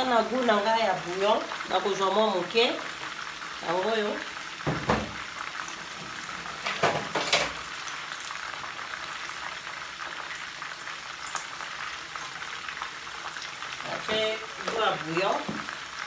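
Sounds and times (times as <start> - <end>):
chicken sizzling in oil: 0.0 - 16.0.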